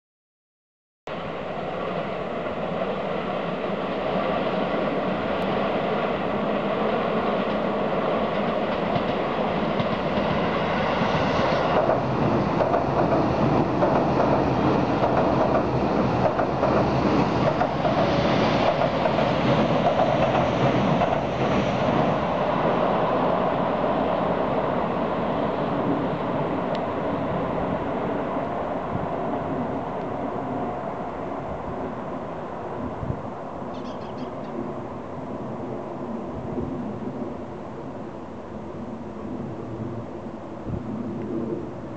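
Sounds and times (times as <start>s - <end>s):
train wheels clattering over rails: 8.3s - 22.2s.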